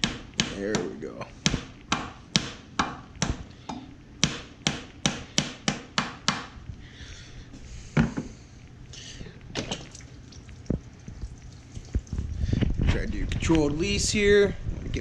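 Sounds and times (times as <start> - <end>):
hammer tapping on metal: 1.5 - 6.5.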